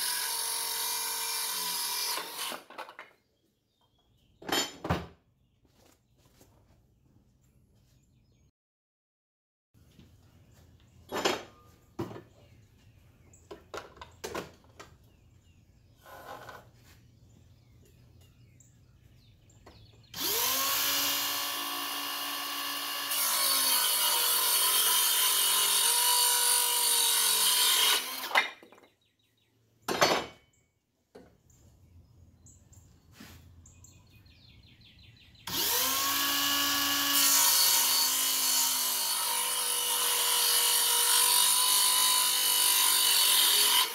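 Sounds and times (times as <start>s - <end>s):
circular saw cutting wood: 0.0s - 2.7s, 20.1s - 28.5s, 35.5s - 43.9s.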